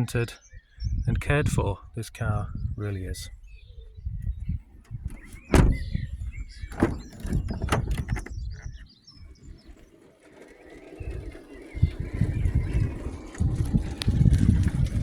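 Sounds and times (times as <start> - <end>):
birds chirping and cooing: 2.5 - 14.2
low rumbling: 3.9 - 9.8.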